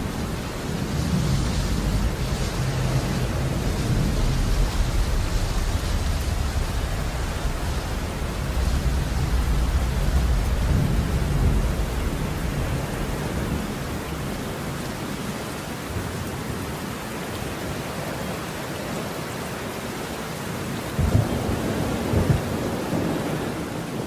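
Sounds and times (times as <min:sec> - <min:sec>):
thunder rumbling: 0:00.0 - 0:14.7, 0:20.9 - 0:24.0
steady rain: 0:00.0 - 0:24.0.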